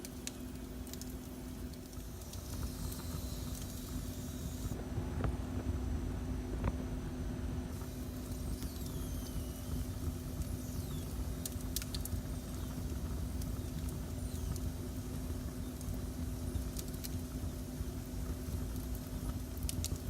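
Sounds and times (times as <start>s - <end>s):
fire crackles: 0.0s - 4.8s, 7.7s - 20.0s
fireplace fire rumbling: 9.6s - 20.0s.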